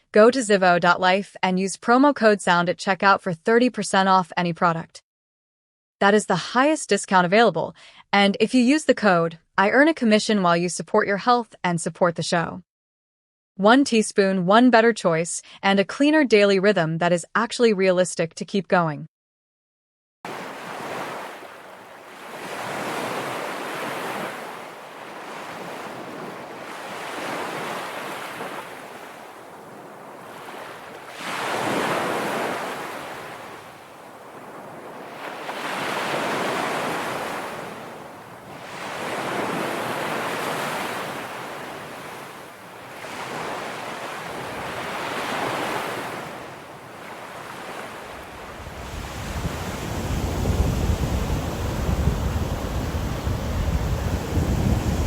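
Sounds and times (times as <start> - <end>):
ocean waves breaking on shore: 20.3 - 55.0.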